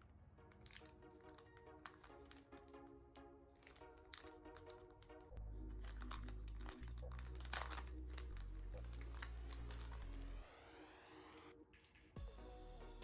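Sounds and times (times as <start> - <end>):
plastic packaging crinkling: 0.4 - 10.5
background music with bass line: 4.3 - 13.0.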